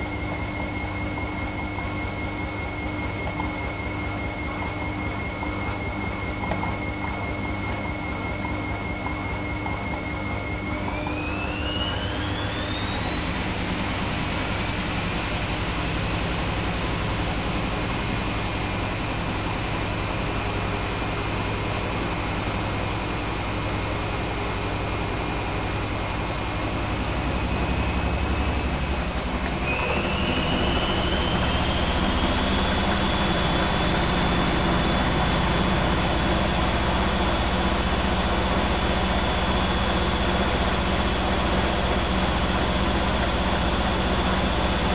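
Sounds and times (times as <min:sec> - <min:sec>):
washing machine motor whine: 0:00.0 - 0:44.9.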